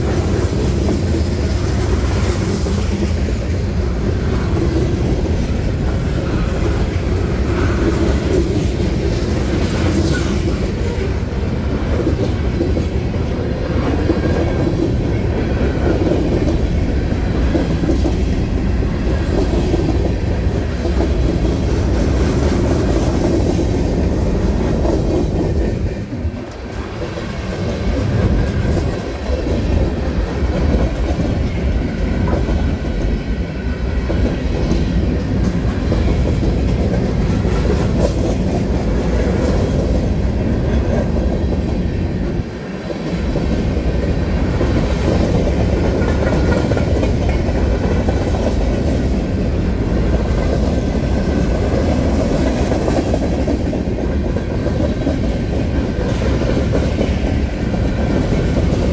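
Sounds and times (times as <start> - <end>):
freight train rolling past: 0.0 - 58.9.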